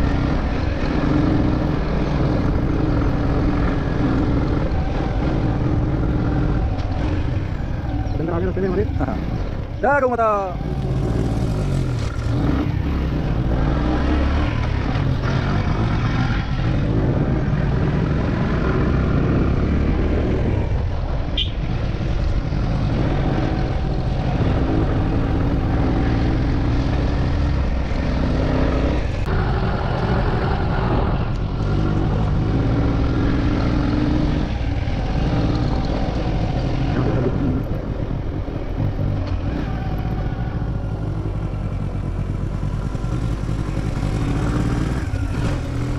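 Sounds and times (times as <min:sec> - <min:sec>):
motorcycle engine running: 0:10.5 - 0:45.9.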